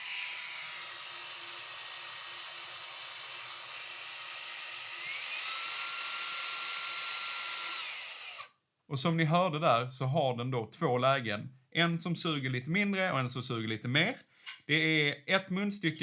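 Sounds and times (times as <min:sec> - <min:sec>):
handheld vacuum motor whine: 0:00.0 - 0:08.5.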